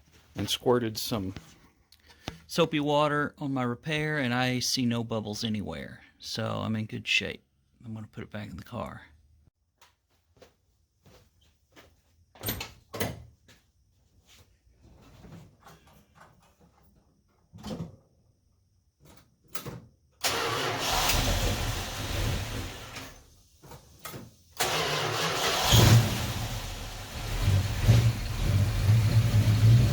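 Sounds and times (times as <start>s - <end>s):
car engine starting and running: 20.2s - 23.4s, 24.6s - 29.9s.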